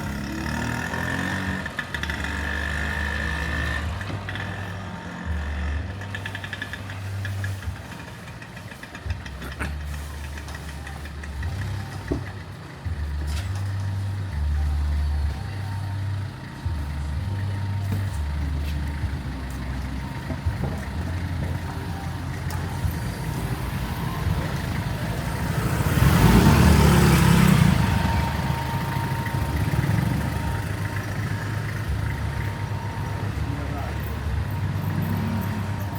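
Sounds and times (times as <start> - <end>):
low rumble of traffic engines: 0.0 - 35.9
vehicle passing close: 16.7 - 35.9.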